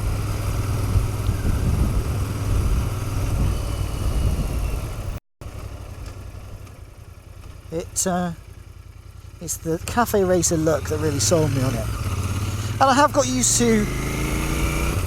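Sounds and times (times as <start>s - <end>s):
motorcycle engine droning: 0.0s - 15.0s
wind rush: 0.7s - 5.2s.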